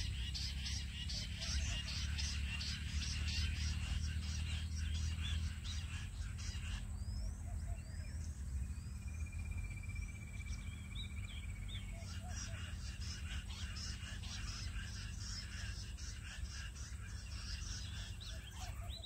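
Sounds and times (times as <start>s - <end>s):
bird trill: 0.0s - 19.0s
birds chirping: 0.0s - 19.0s
steady low hum: 0.0s - 19.0s.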